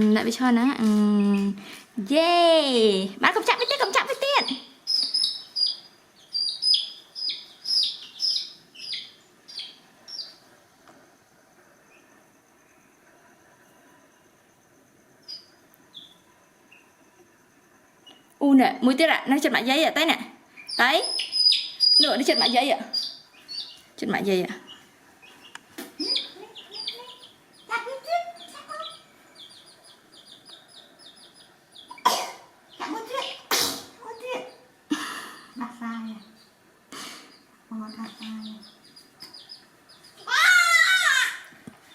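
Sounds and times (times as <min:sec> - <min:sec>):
bird chirping: 0:02.8 - 0:10.7, 0:15.1 - 0:18.4, 0:20.4 - 0:41.9.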